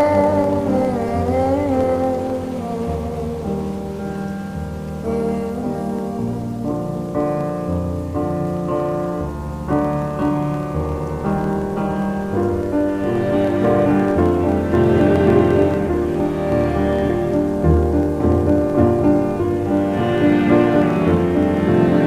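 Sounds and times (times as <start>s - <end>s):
rain and storm ambience: 0.0s - 22.0s
slowed-down piano chords: 0.0s - 22.0s.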